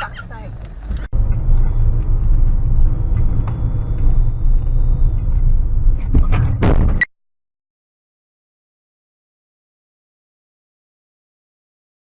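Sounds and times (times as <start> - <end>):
car road and engine rumble: 0.0 - 7.1.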